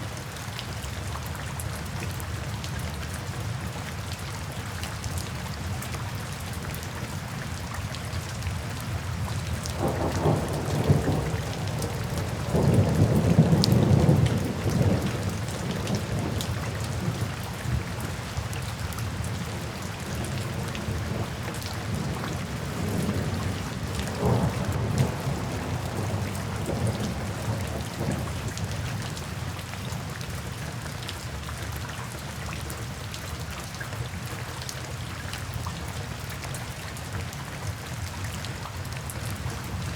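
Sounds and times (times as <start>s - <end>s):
steady rain falling: 0.0s - 39.9s
distant thunder rumbling: 9.8s - 17.3s, 20.2s - 28.9s.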